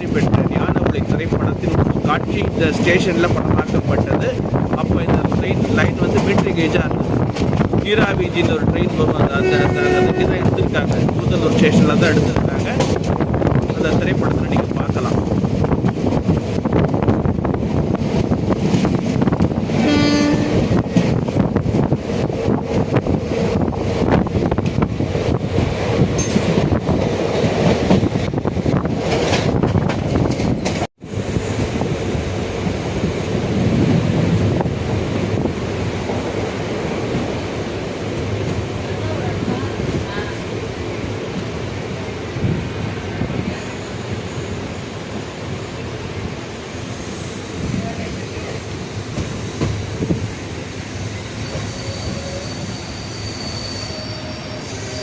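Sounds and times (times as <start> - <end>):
train wheels rumbling on rails: 0.0 - 55.0
high wheel squeal: 51.2 - 55.0.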